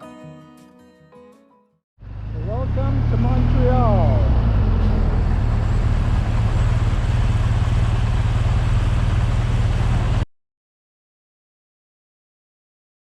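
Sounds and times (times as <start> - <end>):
motorcycle engine rumble: 2.0 - 10.2.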